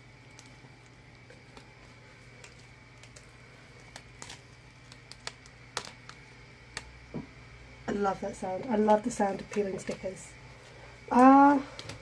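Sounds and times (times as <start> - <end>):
steady low hum: 0.0 - 12.0
paper and stickers handled: 0.3 - 6.9, 8.6 - 10.2.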